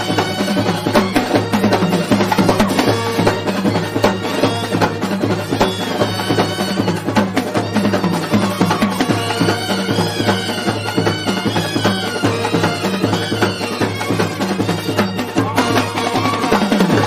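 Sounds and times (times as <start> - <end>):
fast drum beats: 0.0 - 17.0
reedy wind instrument melody: 0.0 - 17.0.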